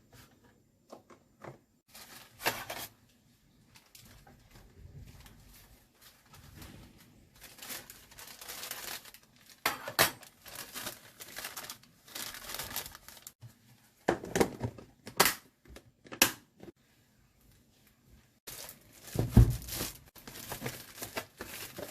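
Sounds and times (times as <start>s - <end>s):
plastic packaging crinkling: 3.6s - 13.4s, 18.5s - 21.9s.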